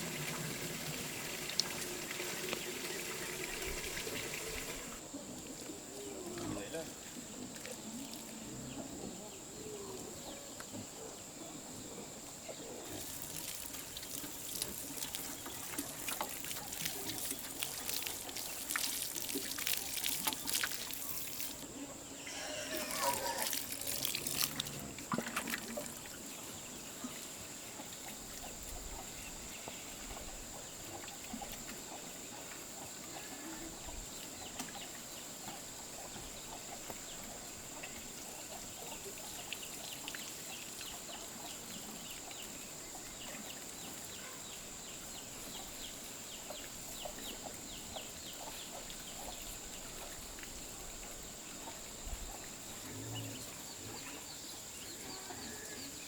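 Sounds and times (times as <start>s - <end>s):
chickens clucking: 20.0s - 44.4s.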